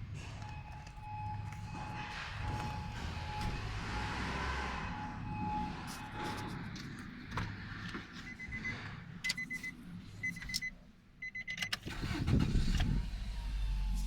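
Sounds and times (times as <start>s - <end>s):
car engine starting and idling: 0.0s - 14.0s
car warning chime beeps: 0.3s - 6.4s, 8.2s - 11.9s.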